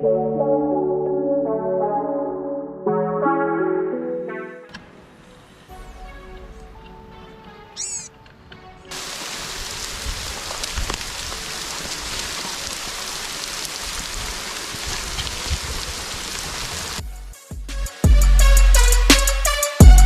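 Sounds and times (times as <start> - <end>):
steady rain: 8.4 - 17.4
raindrop ticks: 8.9 - 16.8.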